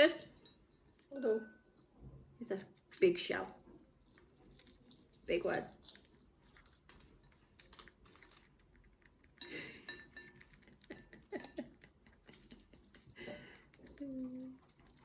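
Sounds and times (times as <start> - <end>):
parrot beak crunching nut shell: 3.4 - 15.0.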